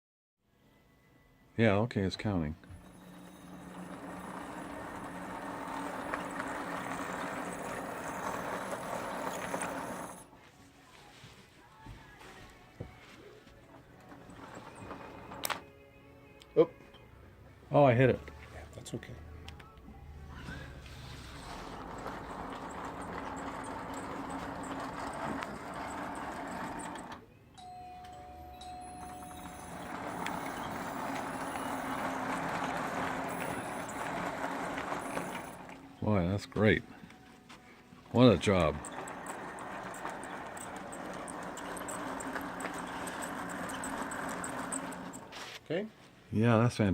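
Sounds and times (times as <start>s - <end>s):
model train wheels rattling: 2.8s - 10.3s, 21.3s - 27.2s, 28.8s - 35.8s, 38.1s - 45.4s
low motor hum: 19.9s - 27.2s, 28.6s - 36.0s, 38.6s - 45.3s.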